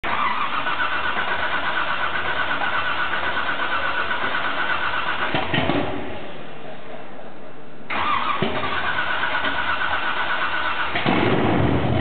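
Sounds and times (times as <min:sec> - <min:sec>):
starter motor cranking engine: 0:00.0 - 0:05.6, 0:07.9 - 0:11.4.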